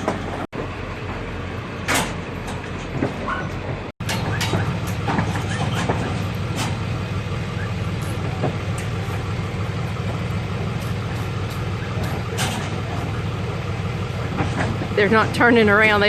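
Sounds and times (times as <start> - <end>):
sharp knocks and rattles: 0.0 - 0.8, 1.8 - 15.3
truck engine rumbling: 0.0 - 16.0.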